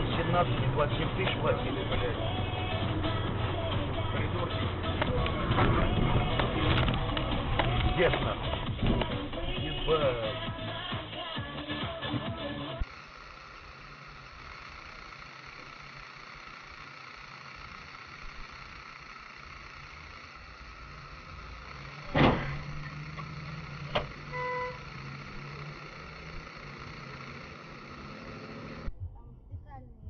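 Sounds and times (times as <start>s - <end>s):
road noise inside moving car: 0.0s - 10.9s, 12.8s - 28.9s
loud collision bang: 22.1s - 22.6s
short beep: 24.2s - 24.9s.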